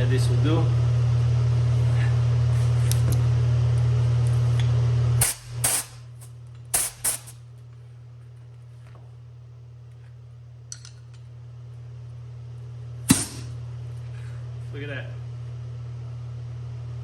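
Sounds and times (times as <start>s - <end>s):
air compressor humming: 0.0s - 8.9s, 12.8s - 15.2s
air gun blasts: 5.2s - 6.0s, 6.7s - 7.4s, 13.1s - 13.5s.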